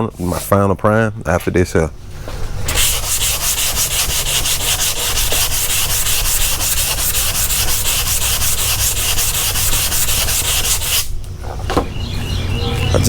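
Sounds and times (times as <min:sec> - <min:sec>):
hand sanding with sandpaper block: 0:02.6 - 0:11.1.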